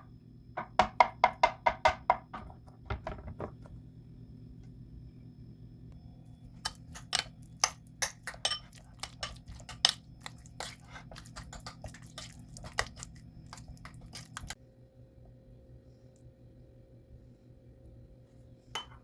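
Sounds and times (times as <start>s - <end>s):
kitchenware clinking: 6.6s - 10.0s, 18.8s - 19.0s.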